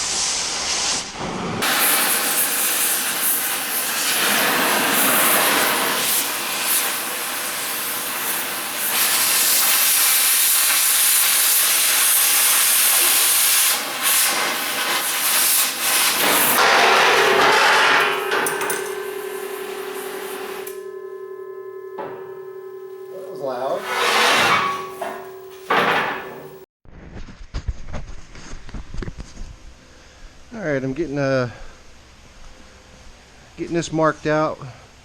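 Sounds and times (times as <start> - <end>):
power tool grinding steel: 15.6 - 26.0
ringing metal tone: 16.6 - 26.6.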